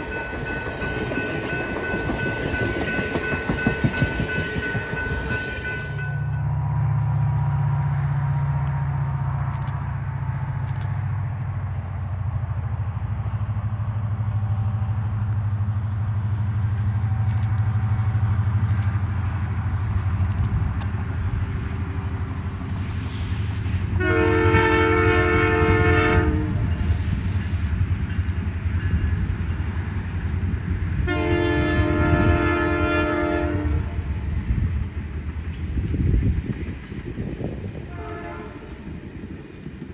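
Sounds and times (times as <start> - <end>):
diesel locomotive engine drone: 0.0 - 39.9
locomotive horn blast: 24.0 - 26.6, 31.0 - 34.0, 37.9 - 38.8.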